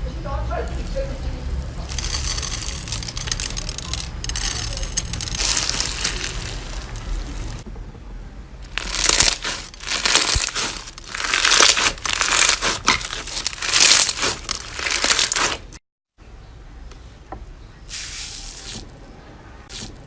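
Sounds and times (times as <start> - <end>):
crumbly material crunching: 0.8 - 7.6, 8.6 - 15.8.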